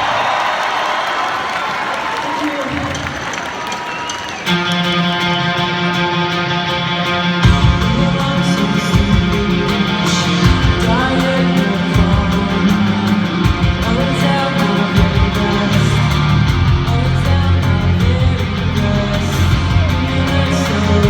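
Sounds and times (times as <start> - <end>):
punk rock band playing live: 4.4 - 21.0
pounding drums: 7.4 - 21.0.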